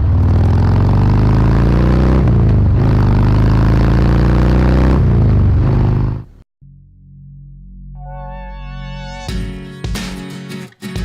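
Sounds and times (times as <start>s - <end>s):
motorcycle engine accelerating: 0.0s - 6.4s.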